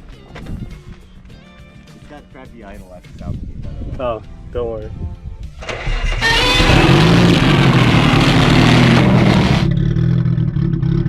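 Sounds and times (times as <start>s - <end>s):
car engine starting and idling: 5.6s - 10.0s.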